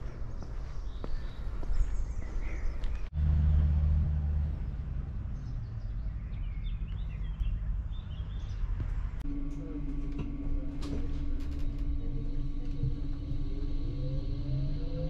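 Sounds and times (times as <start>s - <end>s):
birds chirping: 0.0s - 3.7s, 5.2s - 9.3s
train humming at platform: 9.2s - 15.0s.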